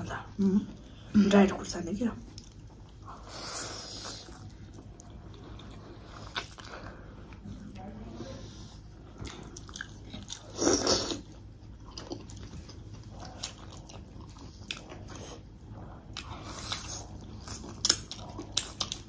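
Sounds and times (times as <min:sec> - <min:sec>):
person biting and chewing food: 0:09.2 - 0:19.0.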